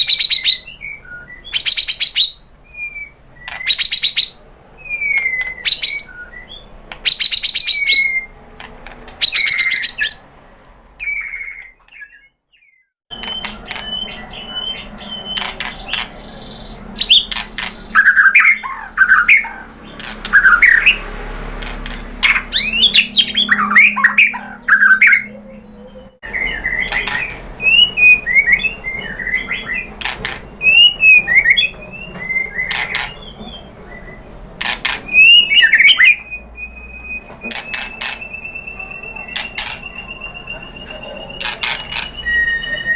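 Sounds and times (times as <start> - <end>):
sharp bird clicks: 0.0 - 12.3, 13.1 - 14.1, 15.3 - 16.3, 17.0 - 21.0, 21.6 - 25.2, 26.7 - 31.6, 37.5 - 38.6, 39.3 - 40.1, 41.4 - 42.2
bird singing whistled phrases: 0.0 - 19.7, 20.3 - 21.0, 22.0 - 34.3, 35.1 - 42.9.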